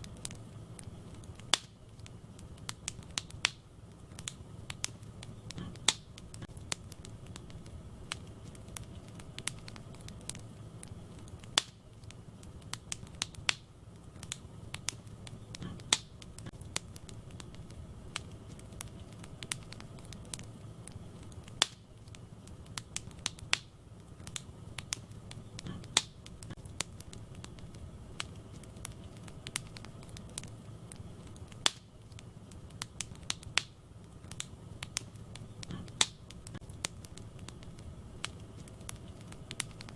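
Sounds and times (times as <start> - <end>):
burning wood popping and crackling: 0.0 - 39.9
low rumble of flames: 0.0 - 39.9.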